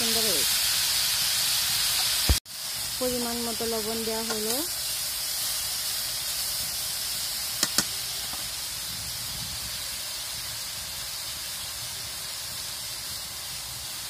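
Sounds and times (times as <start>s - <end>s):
vegetables sizzling in hot oil: 0.0s - 14.0s.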